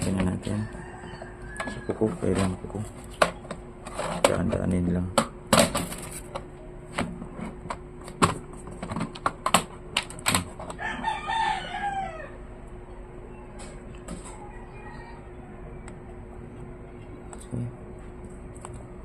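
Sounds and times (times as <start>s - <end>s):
rooster crowing: 0.2s - 2.5s, 10.7s - 12.6s, 13.3s - 17.2s.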